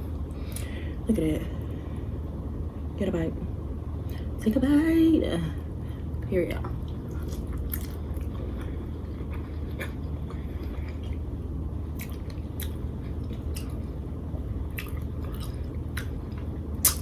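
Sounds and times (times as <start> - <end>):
steady low hum: 0.0 - 17.0
person chewing: 6.9 - 11.2, 12.0 - 14.0, 14.7 - 17.0.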